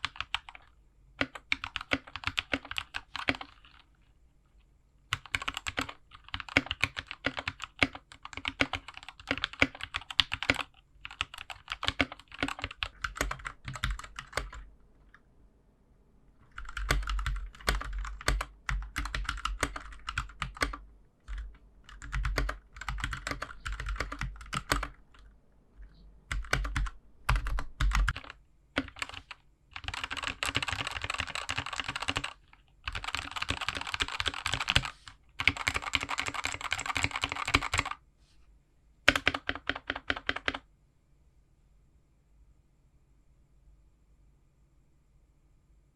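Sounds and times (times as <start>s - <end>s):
mechanical keyboard typing: 0.0s - 3.9s, 5.1s - 14.7s, 16.4s - 25.3s, 26.3s - 38.0s, 39.1s - 40.6s.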